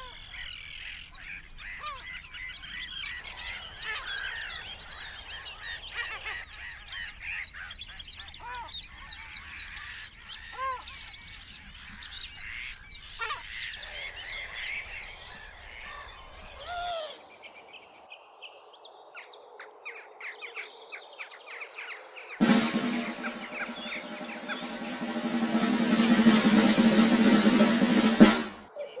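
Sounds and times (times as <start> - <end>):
wild birds calling and singing: 0.0 - 26.4.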